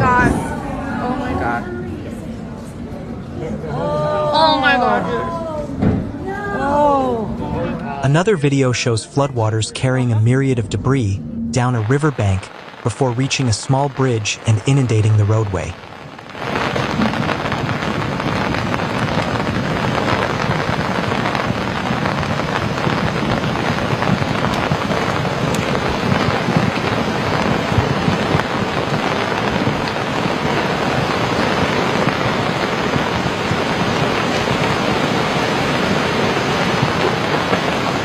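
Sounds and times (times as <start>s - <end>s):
water rushing down river: 11.7s - 38.0s.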